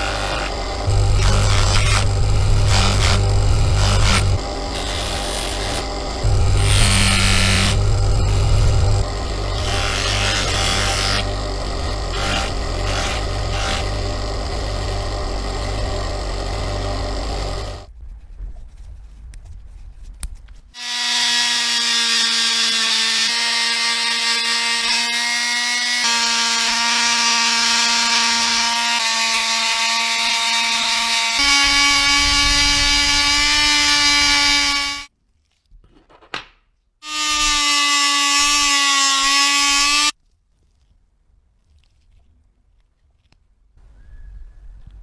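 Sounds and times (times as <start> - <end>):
power tool whining: 0.0 - 17.9, 20.8 - 35.1, 37.0 - 40.2.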